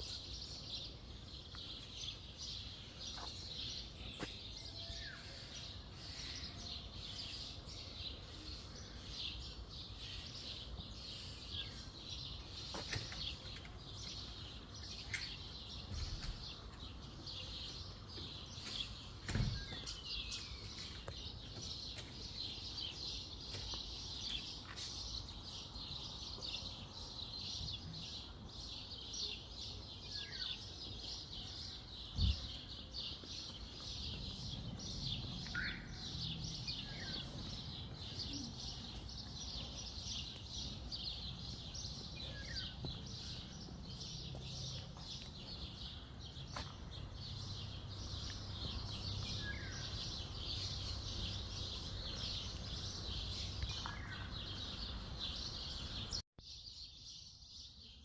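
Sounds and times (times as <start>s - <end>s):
songbirds chirping: 0.0s - 58.0s
thump: 19.2s - 19.8s.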